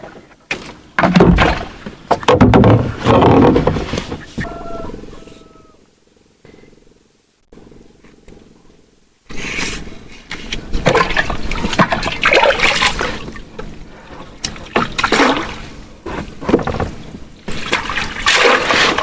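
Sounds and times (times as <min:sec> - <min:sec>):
water splashing and sloshing: 0:00.0 - 0:04.4, 0:10.2 - 0:19.0.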